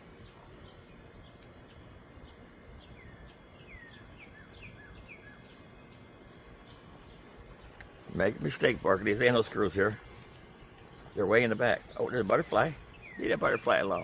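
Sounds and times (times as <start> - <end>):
low outdoor background hiss: 0.0 - 14.0.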